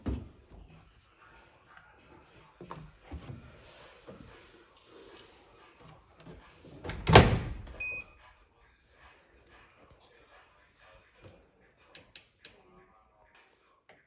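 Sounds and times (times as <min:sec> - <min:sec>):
washing machine door thudding shut: 0:06.8 - 0:07.8.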